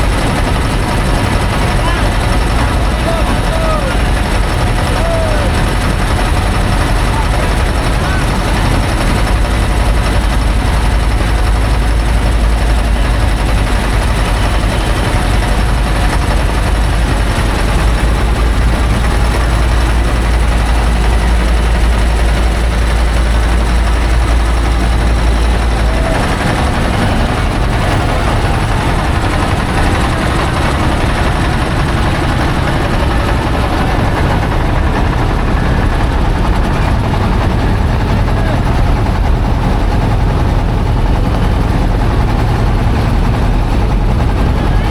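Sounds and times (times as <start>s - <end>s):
loud engine rumble: 0.0s - 44.9s.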